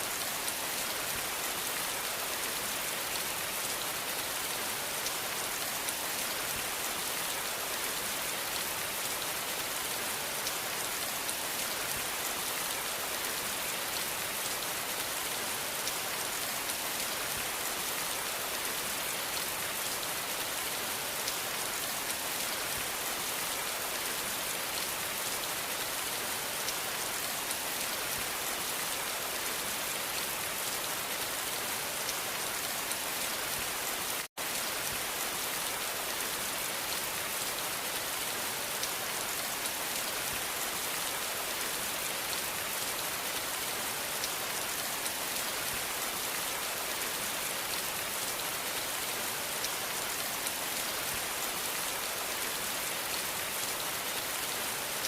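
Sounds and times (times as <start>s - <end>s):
rain falling on a surface: 0.0s - 55.0s.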